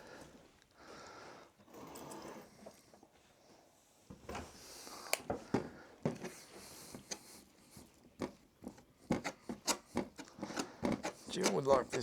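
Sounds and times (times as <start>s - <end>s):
putty spatula scraping and tapping: 8.2s - 12.0s.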